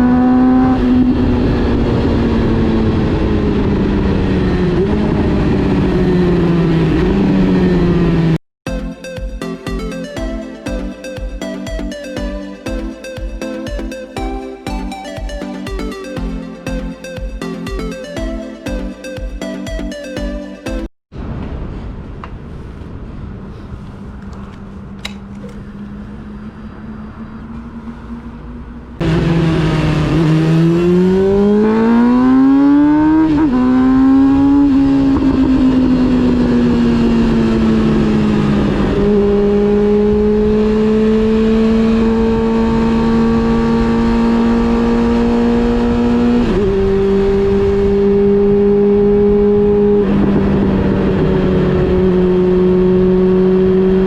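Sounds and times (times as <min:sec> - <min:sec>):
motorcycle engine revving: 0:00.0 - 0:08.4, 0:24.8 - 0:54.0.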